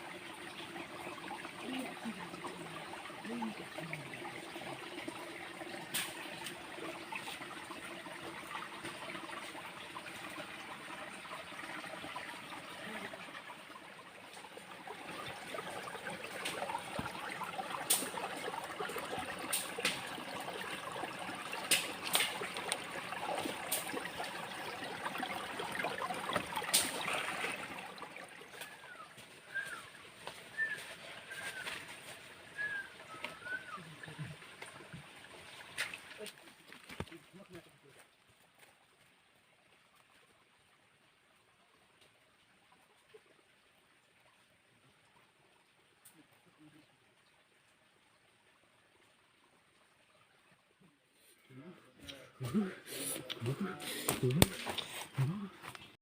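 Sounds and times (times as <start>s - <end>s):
water trickling: 0.0s - 56.0s
sharp clicks or splashes: 21.6s - 24.1s, 26.4s - 27.6s, 53.2s - 54.9s.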